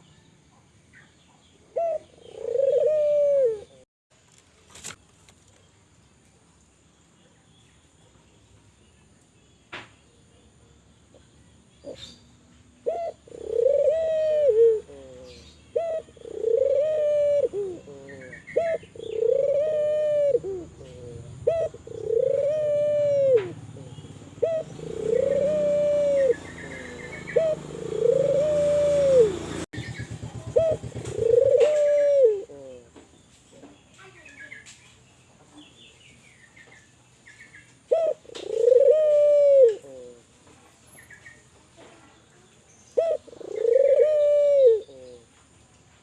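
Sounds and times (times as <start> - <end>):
dove cooing: 1.7 - 3.8, 12.8 - 29.7, 30.4 - 32.9, 37.9 - 40.3, 43.0 - 45.3.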